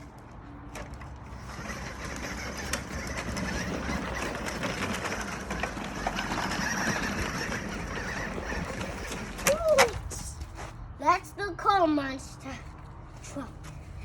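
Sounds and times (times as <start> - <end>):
toy electric motor whirring: 1.2 - 10.2.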